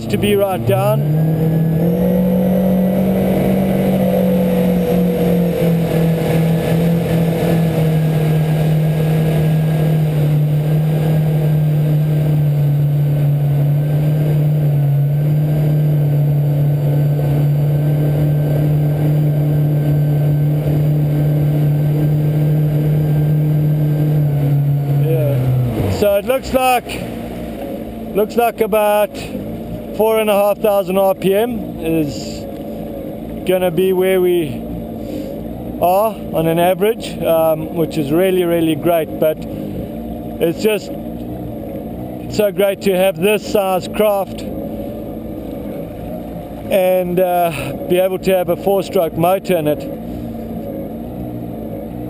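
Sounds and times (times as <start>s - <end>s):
jetski engine running: 0.0s - 52.0s.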